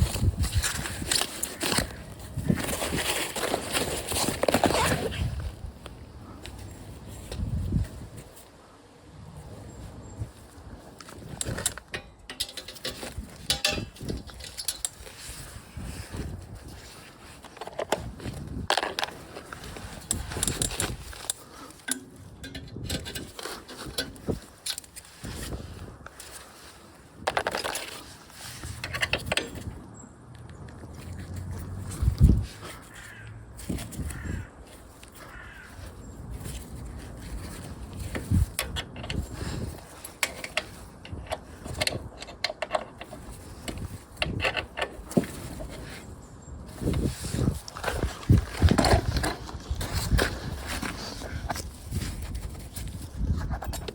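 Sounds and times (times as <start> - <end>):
metal tools clinking and rattling: 10.9 - 26.5, 33.6 - 53.9.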